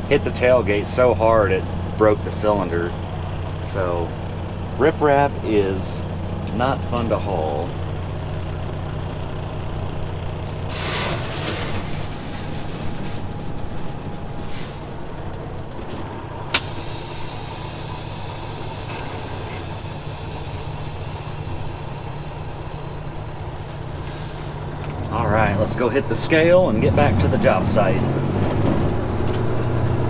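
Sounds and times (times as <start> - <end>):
diesel engine idling: 0.0 - 30.0
sharp click: 16.5 - 25.0.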